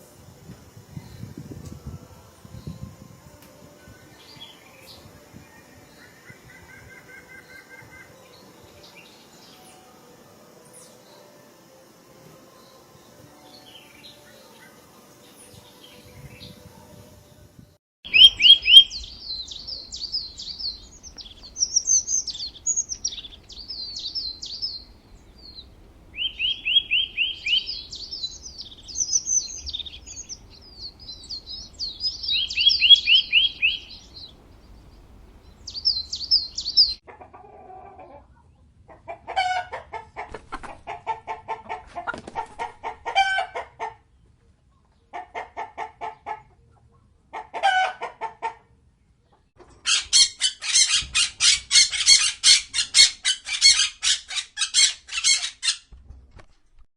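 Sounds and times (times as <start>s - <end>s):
songbird chirping and trilling: 0.0s - 37.1s, 49.1s - 55.9s
chicken clucking: 35.7s - 44.0s, 44.8s - 53.4s.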